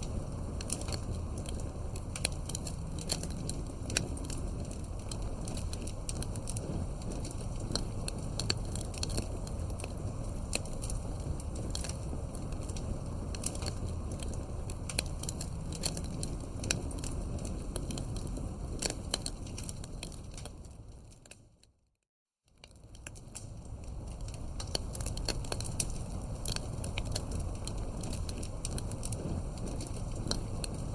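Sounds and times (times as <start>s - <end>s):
campfire crackling: 0.0s - 21.5s, 22.6s - 30.9s.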